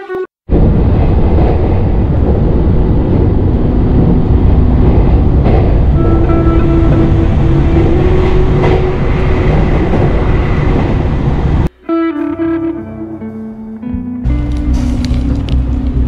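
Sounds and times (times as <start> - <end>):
train cabin rumbling: 0.4 - 11.7, 14.3 - 16.0
background music: 11.7 - 16.0.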